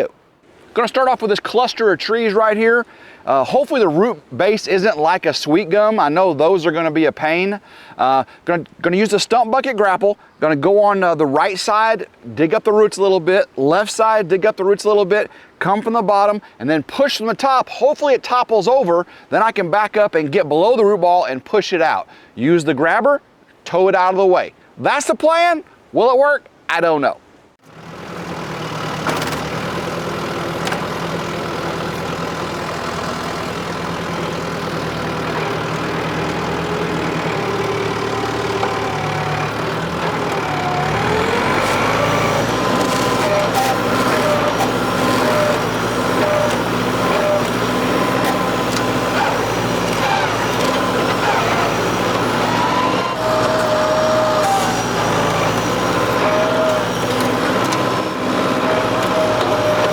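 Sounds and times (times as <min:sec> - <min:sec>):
tractor diesel engine under load: 0:00.0 - 0:08.6, 0:27.6 - 0:59.9
hydraulic whine: 0:27.7 - 0:59.9.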